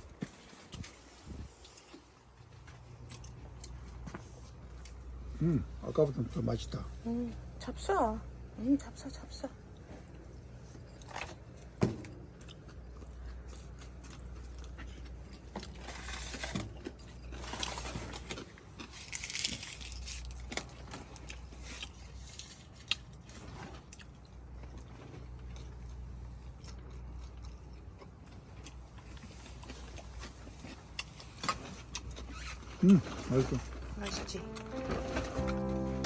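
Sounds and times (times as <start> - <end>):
person chewing crunchy food: 0.0 - 5.3, 10.5 - 32.8
low steady hum: 0.0 - 18.4, 24.1 - 36.0.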